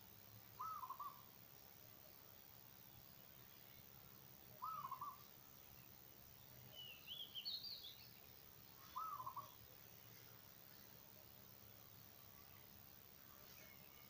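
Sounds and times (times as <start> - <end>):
bird low call: 0.6 - 1.3, 4.6 - 5.3, 8.8 - 9.6.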